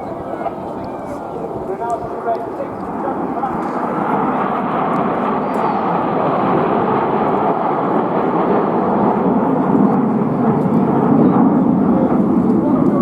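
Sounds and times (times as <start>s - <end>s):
aircraft engine overhead: 0.0s - 13.0s.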